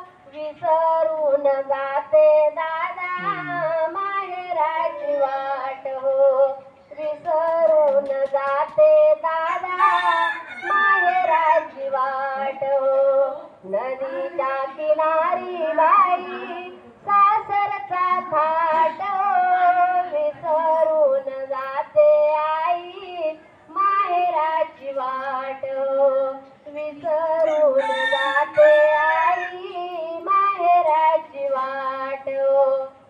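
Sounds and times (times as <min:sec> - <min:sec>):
women singing: 0:00.0 - 0:33.0.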